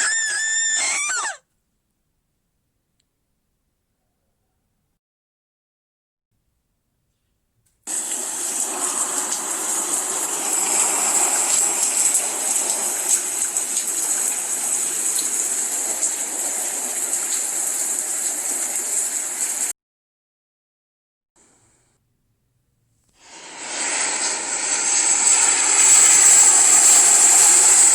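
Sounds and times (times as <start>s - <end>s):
steady rushing noise: 23.2s - 27.9s.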